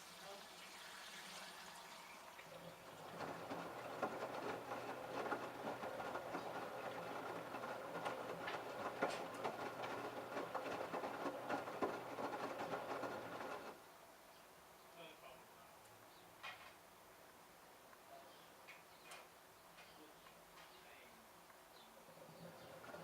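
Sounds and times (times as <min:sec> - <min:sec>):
washing machine drum tumbling: 0:02.6 - 0:13.8, 0:22.3 - 0:23.0
clothes knocking in drum: 0:03.0 - 0:13.7.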